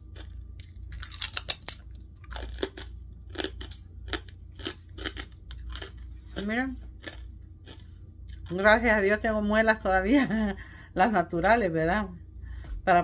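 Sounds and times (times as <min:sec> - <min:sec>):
person chewing crunchy food: 0:00.0 - 0:08.6.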